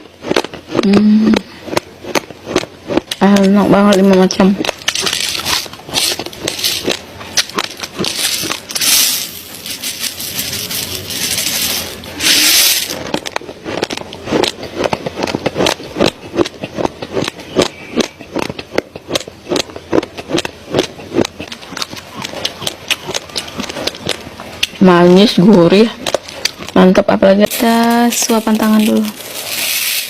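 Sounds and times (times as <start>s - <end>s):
rice grains being chewed: 0.0s - 24.8s, 25.4s - 30.0s
rustling hiss: 8.2s - 13.0s, 27.5s - 30.0s.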